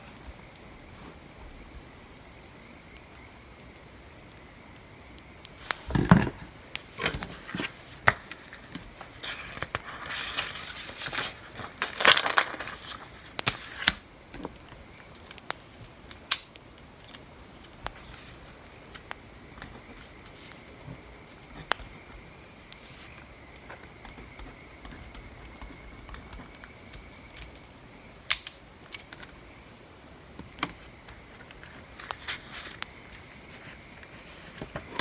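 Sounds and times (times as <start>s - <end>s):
faint background noise: 0.0s - 35.0s
paper rustling: 5.6s - 14.5s, 30.8s - 35.0s.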